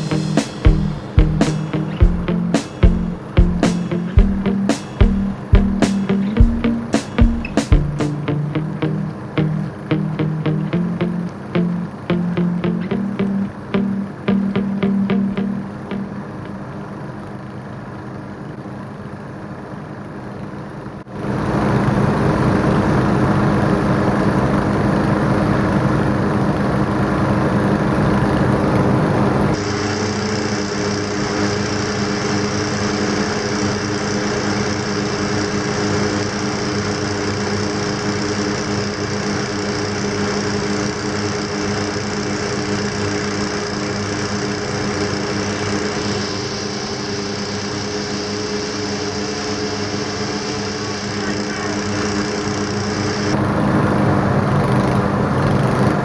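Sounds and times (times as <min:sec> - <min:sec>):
small gasoline engines running: 0:53.4 - 0:56.0.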